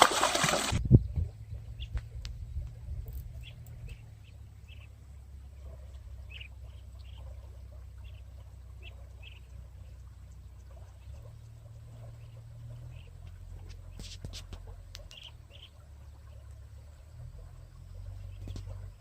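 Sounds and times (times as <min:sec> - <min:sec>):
low steady rumble: 0:00.7 - 0:19.0.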